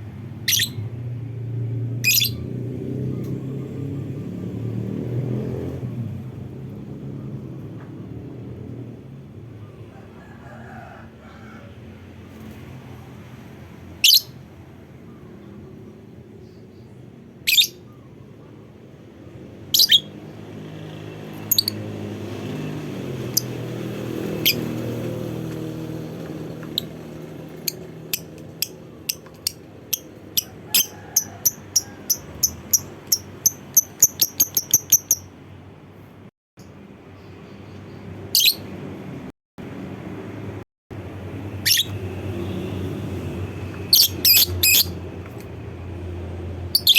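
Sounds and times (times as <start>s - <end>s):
lovebird chirping: 0.4s - 0.9s, 2.0s - 2.5s, 17.4s - 18.0s, 19.8s - 20.1s, 26.6s - 35.4s, 41.6s - 42.1s, 43.8s - 45.0s.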